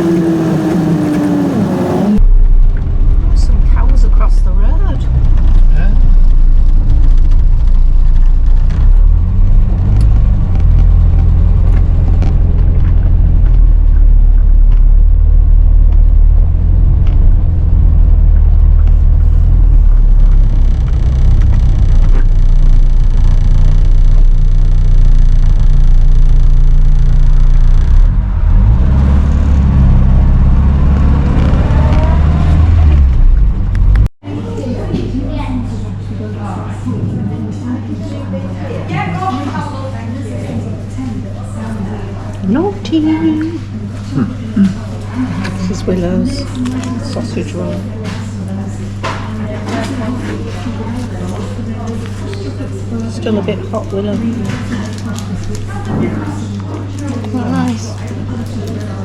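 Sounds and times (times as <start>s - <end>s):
car engine and road rumble: 0.0s - 34.1s.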